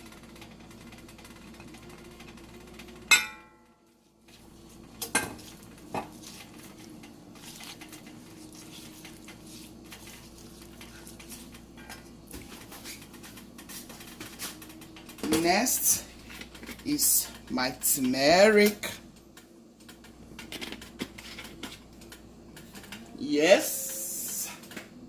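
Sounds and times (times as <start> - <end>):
metal cookware clanking: 3.1 - 3.7
stirring in a pan: 4.0 - 18.9, 20.4 - 22.0.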